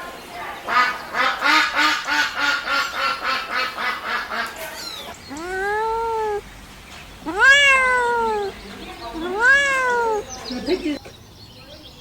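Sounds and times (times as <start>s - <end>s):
kittens mewing: 4.8s - 6.4s, 7.2s - 8.6s, 9.2s - 10.8s.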